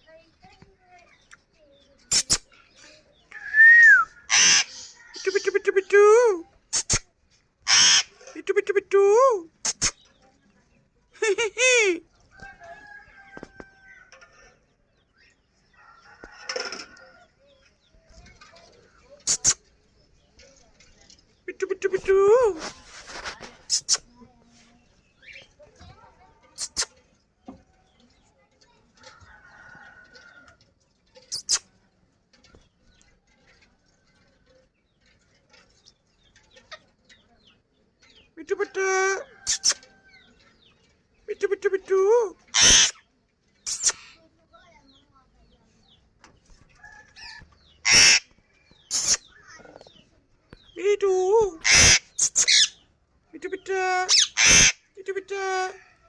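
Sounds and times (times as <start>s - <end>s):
soft peeps: 1.3s - 8.8s, 17.4s - 27.2s, 31.1s - 31.9s, 35.7s - 45.0s, 45.8s - 53.0s
bird harsh squawk: 3.5s - 5.0s, 6.7s - 8.2s, 42.5s - 43.0s, 47.8s - 48.3s, 48.9s - 49.4s, 51.6s - 52.8s, 54.1s - 54.8s
parrot squeaking: 4.1s - 5.5s, 7.6s - 8.2s, 31.3s - 31.7s, 42.5s - 43.0s, 43.6s - 44.2s, 47.2s - 48.3s, 48.9s - 49.5s, 51.6s - 52.8s, 54.0s - 54.8s.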